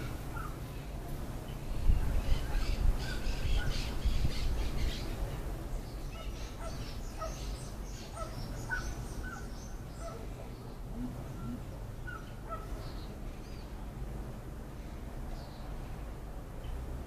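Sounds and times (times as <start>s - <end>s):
birds chirping and squawking: 6.1s - 10.7s.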